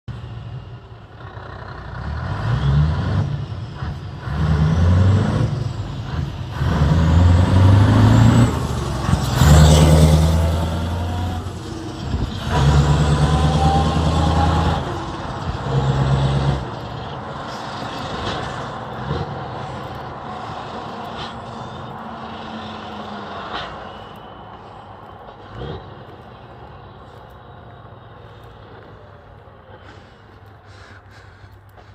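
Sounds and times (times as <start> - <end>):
truck diesel engine revving: 0.1 - 31.0.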